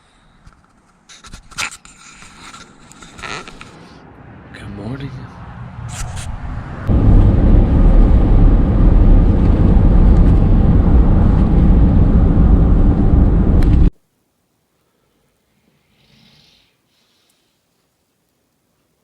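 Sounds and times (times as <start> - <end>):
road and wind noise: 2.2 - 13.9
moving vehicle rumble: 2.5 - 13.9.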